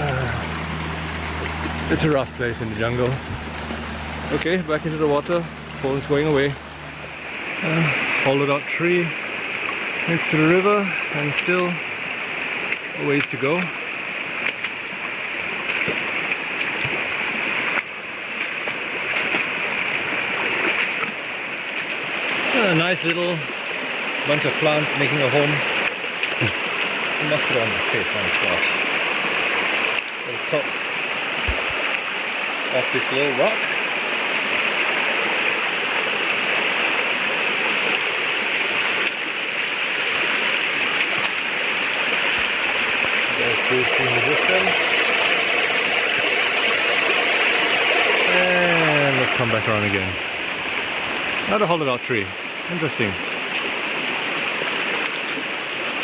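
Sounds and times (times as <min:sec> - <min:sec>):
river flowing over rocks: 0:00.0 - 0:08.2, 0:33.8 - 0:51.5
river water flowing: 0:00.0 - 0:56.0.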